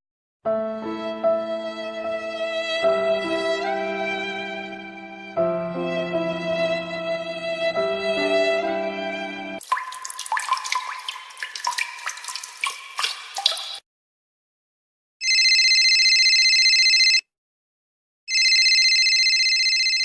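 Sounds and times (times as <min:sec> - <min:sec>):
water drops plinking and bubbling: 0:09.6 - 0:13.8
telephone ringing: 0:15.2 - 0:17.2, 0:18.3 - 0:20.0.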